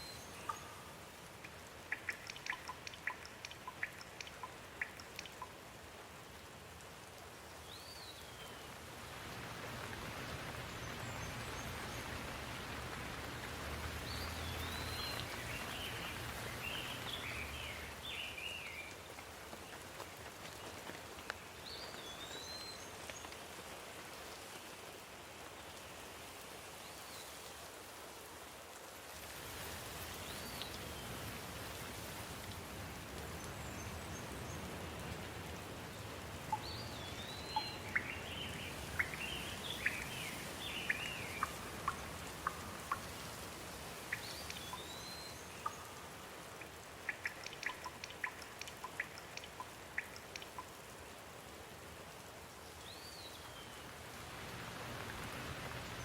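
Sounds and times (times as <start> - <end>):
steady rain falling: 0.0 - 56.0
sharp ticks: 1.4 - 5.6, 47.1 - 50.7
bird chirping: 14.0 - 18.9, 36.5 - 43.2, 44.1 - 46.0, 47.1 - 50.7.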